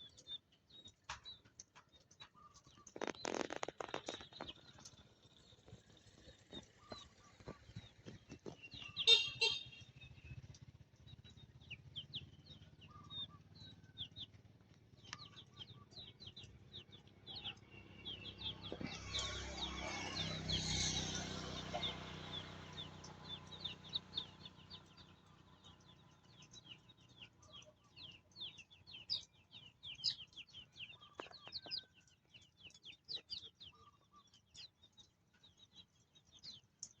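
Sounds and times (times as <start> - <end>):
chicks peeping: 15.0 - 37.0.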